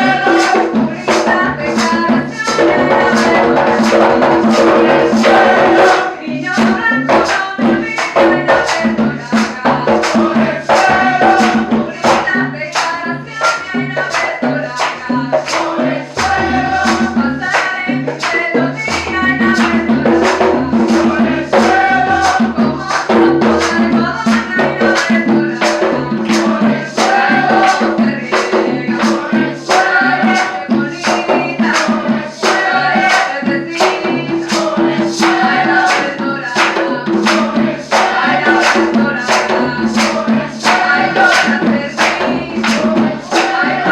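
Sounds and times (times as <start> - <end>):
percussion beat: 0.0 - 43.9
voices singing: 0.0 - 43.9.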